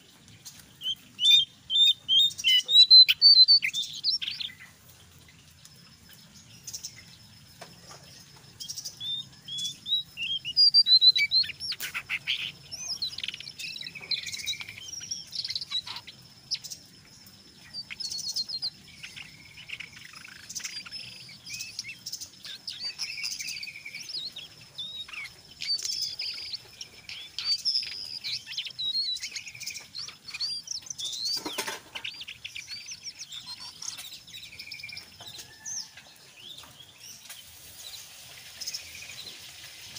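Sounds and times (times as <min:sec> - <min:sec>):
songbird twittering and trilling: 0:00.0 - 0:39.9.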